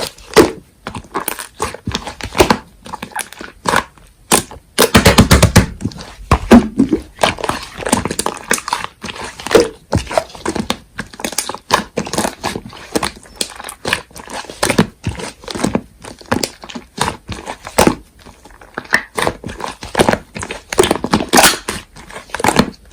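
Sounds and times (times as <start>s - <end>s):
slime squeezed by hand: 18.8s - 22.8s.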